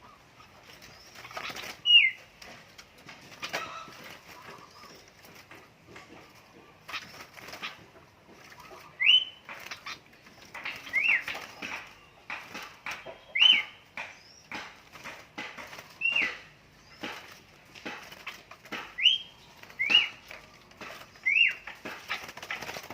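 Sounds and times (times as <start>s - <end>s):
wing-flapping and rustling: 0.0s - 22.9s
bird whistled calls: 1.8s - 2.2s, 8.9s - 9.4s, 13.2s - 14.5s, 16.0s - 17.0s, 19.0s - 20.2s, 21.2s - 21.6s.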